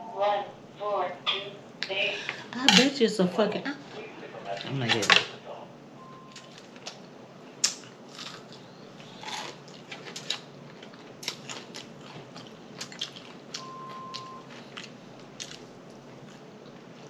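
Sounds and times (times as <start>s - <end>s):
short steady beep: 6.0s - 6.4s, 13.6s - 14.5s
person chewing and lip smacking: 6.3s - 7.0s, 7.6s - 17.0s.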